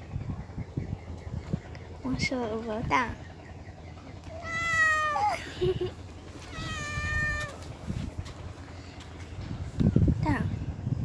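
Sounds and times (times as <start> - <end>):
cat meowing: 4.3 - 5.4, 6.5 - 7.6.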